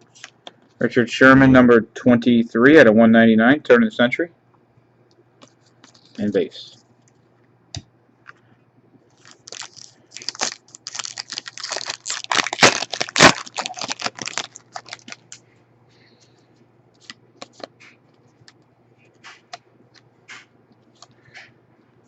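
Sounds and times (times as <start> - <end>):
foil wrapper tearing and crinkling: 9.1 - 15.4.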